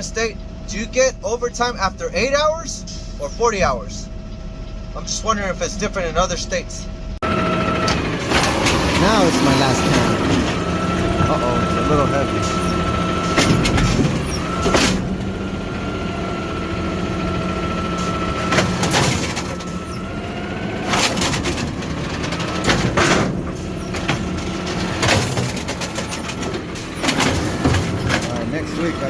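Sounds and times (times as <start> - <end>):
garbage truck engine running: 0.0 - 29.0
hydraulic whine: 1.9 - 29.0
trash can clanking: 7.9 - 15.3, 18.0 - 20.1, 20.7 - 29.0.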